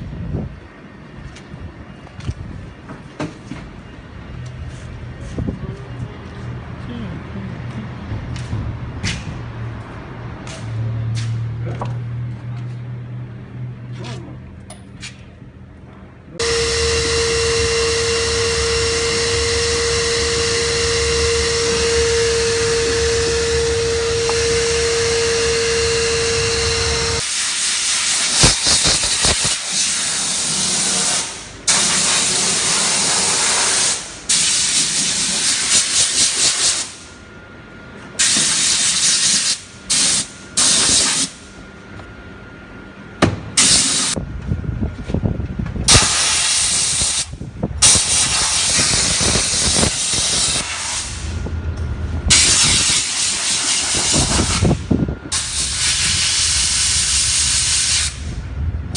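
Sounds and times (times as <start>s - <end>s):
steam cleaner lance hissing: 16.4s - 37.1s, 38.2s - 41.4s, 43.6s - 44.2s, 45.9s - 51.4s, 52.3s - 58.4s.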